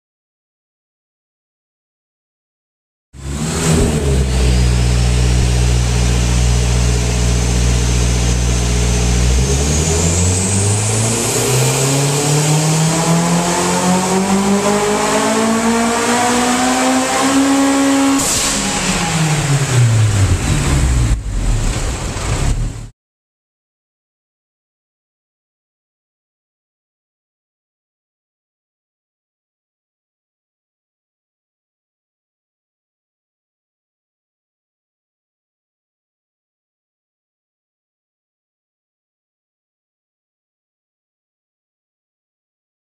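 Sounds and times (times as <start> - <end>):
car engine revving on dyno: 3.2 - 22.9.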